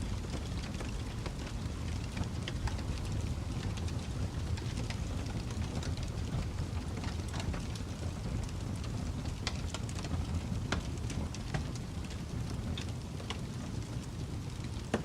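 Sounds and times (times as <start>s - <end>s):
fire crackles and pops: 0.0s - 15.0s
fire flames rumbling: 0.0s - 15.0s.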